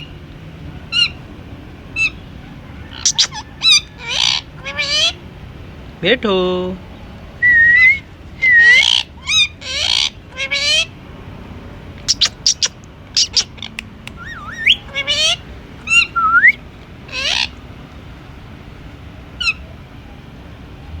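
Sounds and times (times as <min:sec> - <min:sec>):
parakeet squawking and chirping: 0:02.9 - 0:05.2, 0:08.4 - 0:11.0, 0:12.0 - 0:17.7, 0:19.4 - 0:19.6.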